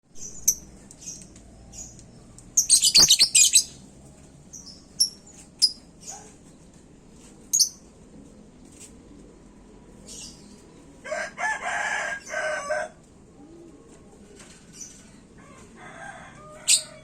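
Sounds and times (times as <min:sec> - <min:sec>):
bird chirping and chattering: 0:00.2 - 0:02.0, 0:02.6 - 0:03.8, 0:04.5 - 0:06.3, 0:07.5 - 0:07.8.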